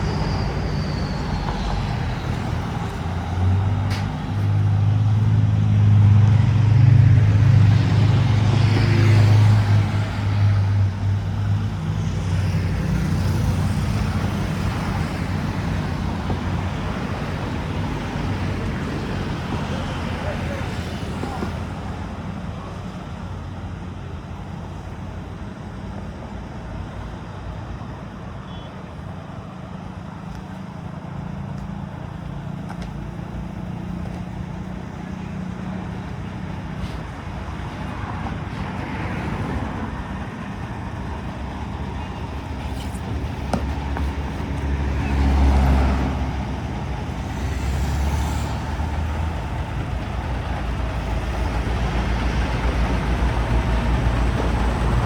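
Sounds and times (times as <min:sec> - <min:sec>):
vehicle engine humming: 0:00.0 - 0:55.0
vehicles passing: 0:00.0 - 0:55.0.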